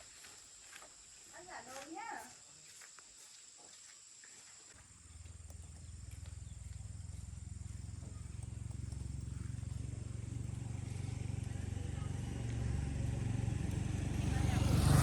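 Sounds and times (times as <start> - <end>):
small engine pulsing: 4.8 - 15.0.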